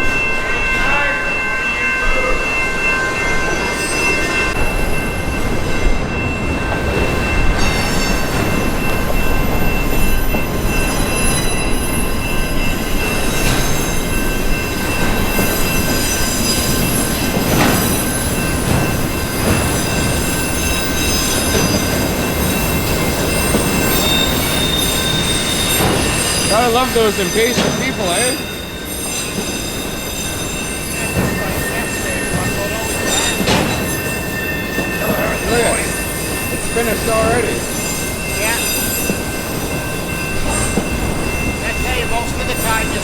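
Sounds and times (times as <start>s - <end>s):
train wheels rumbling on rail: 0.0s - 43.0s
high-pitched wheel squeals: 15.3s - 42.8s.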